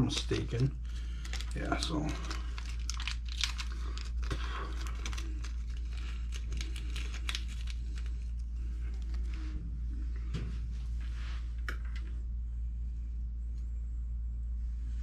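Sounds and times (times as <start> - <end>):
plastic bag crinkling: 0.0 - 9.4
steady low hum: 0.0 - 15.0.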